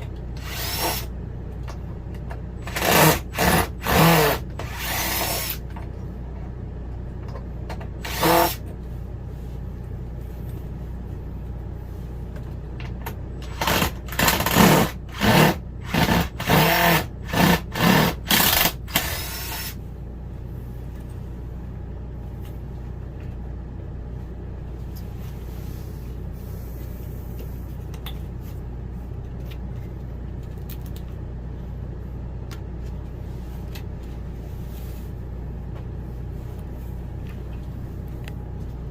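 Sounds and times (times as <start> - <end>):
steady low hum: 0.0 - 38.9
power drill bursts: 0.4 - 1.1, 2.6 - 5.6, 8.0 - 8.6, 13.5 - 19.8.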